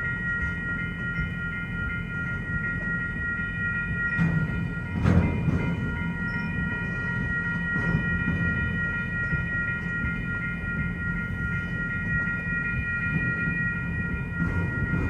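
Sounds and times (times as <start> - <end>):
freight train rumbling over rails: 0.0 - 15.0
high ringing tones: 0.0 - 15.0
heavy clank: 4.1 - 9.4.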